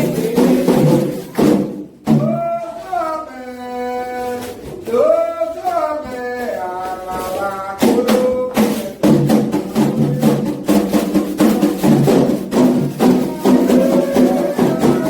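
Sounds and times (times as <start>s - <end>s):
hand drums fast beat: 0.0s - 2.6s, 6.0s - 15.0s
person singing chant unaccompanied: 0.0s - 15.0s.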